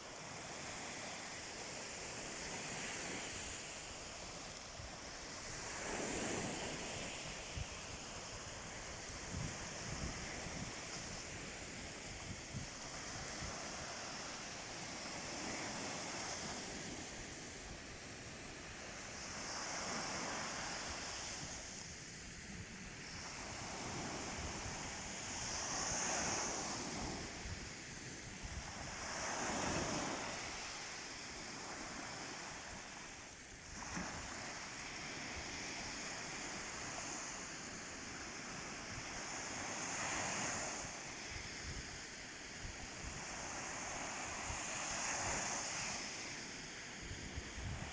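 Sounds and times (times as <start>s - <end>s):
waves breaking on sandy beach: 0.0s - 47.9s
wind buffeting microphone: 4.9s - 14.3s, 47.0s - 47.9s.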